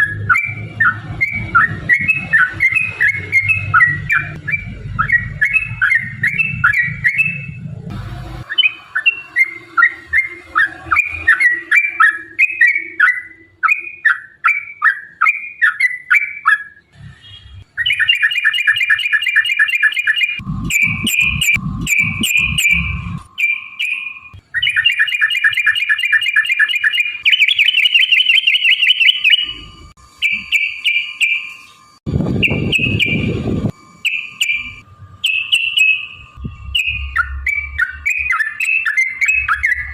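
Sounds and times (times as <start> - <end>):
low rumbling noise: 0.0 - 12.4, 20.4 - 23.4, 32.0 - 35.3, 36.0 - 39.9.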